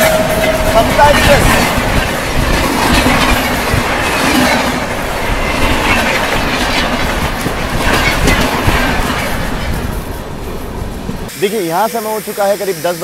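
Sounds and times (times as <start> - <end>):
train wheels clattering on rails: 0.0 - 12.9
passing train: 0.0 - 13.0.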